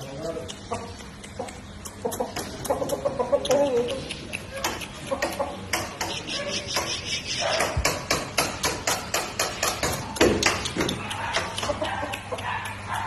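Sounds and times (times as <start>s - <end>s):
rapid even knocking: 4.6s - 11.8s.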